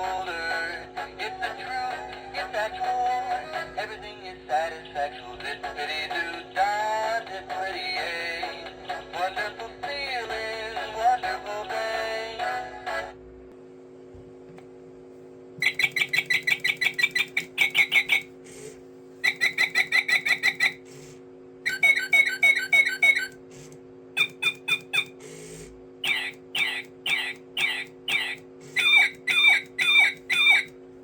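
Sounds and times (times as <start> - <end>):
steady low hum: 0.0 - 31.0
bird-like chirping trills: 15.6 - 18.3, 19.2 - 20.8.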